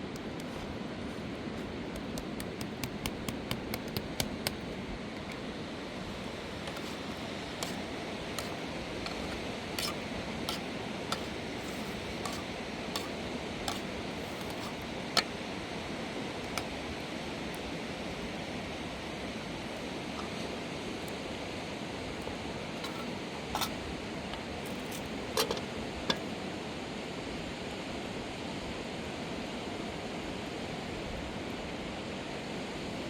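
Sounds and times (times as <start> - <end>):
sharp clicks and knocks: 1.9 - 4.6.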